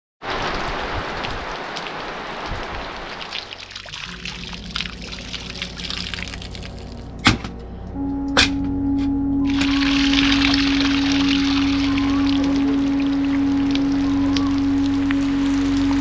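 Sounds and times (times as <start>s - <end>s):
rain falling and dripping: 0.2s - 7.3s, 9.4s - 16.0s
music with held low note: 4.1s - 16.0s.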